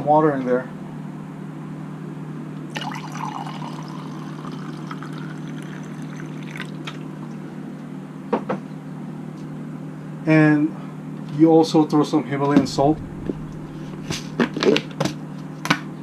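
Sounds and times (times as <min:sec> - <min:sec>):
water pouring into juice: 0:02.7 - 0:07.2
low hum: 0:12.2 - 0:15.6.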